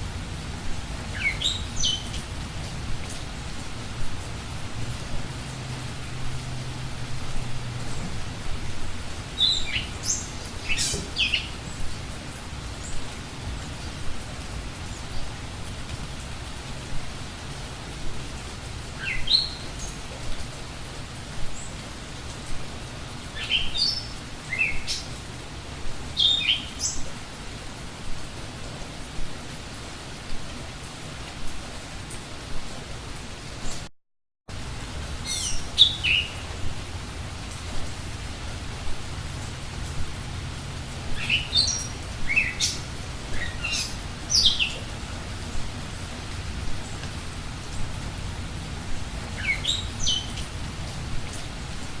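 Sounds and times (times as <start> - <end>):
low background rush: 0.0 - 33.7, 34.5 - 52.0
steady background hiss: 0.0 - 33.8, 34.5 - 52.0
bird chirping: 1.1 - 2.2, 9.4 - 11.9, 41.2 - 44.9, 49.4 - 50.4
songbird singing whistled notes: 1.2 - 2.2, 9.4 - 11.6, 19.0 - 19.9, 49.4 - 50.4.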